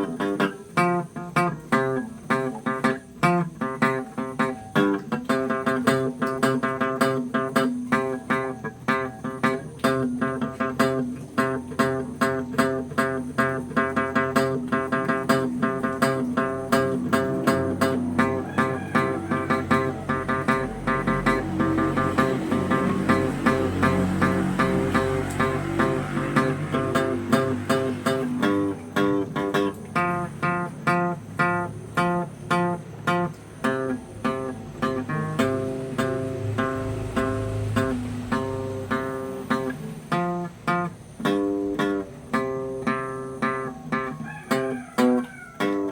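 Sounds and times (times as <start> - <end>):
guitar plucking and strumming: 0.0 - 45.9.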